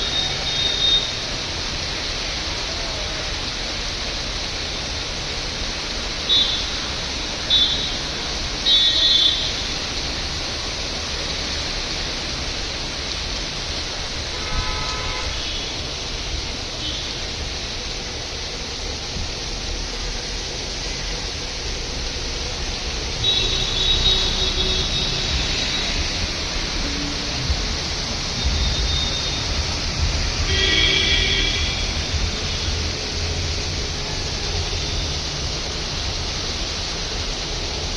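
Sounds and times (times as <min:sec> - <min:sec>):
heavy rain hissing: 0:00.0 - 0:37.9.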